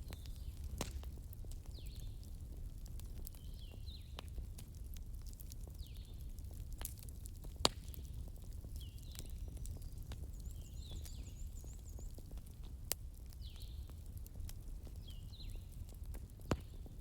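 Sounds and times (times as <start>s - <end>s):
low fire rumble: 0.0s - 17.0s
wood fire crackling: 0.0s - 17.0s.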